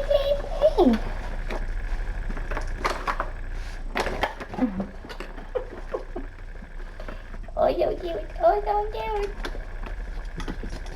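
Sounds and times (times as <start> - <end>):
paws and toys scrabbling and rattling: 0.0 - 10.9
steady low hum: 0.0 - 10.9.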